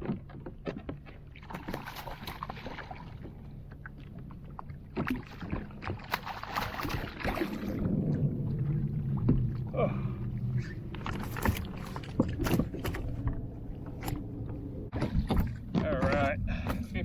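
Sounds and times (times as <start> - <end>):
water splashing: 0.0 - 16.9
clicks and knocks on kayak: 14.9 - 16.9.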